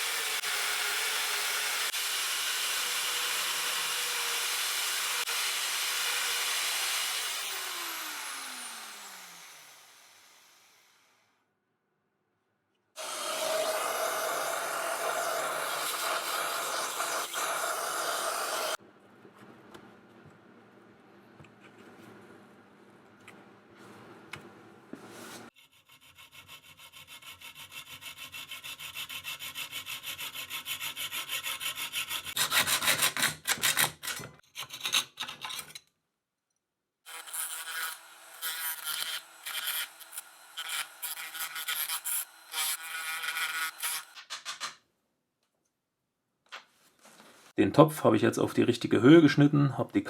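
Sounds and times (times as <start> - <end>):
saw cutting sheet metal: 0.0 - 11.1, 13.0 - 18.8, 25.6 - 34.1, 37.1 - 44.2.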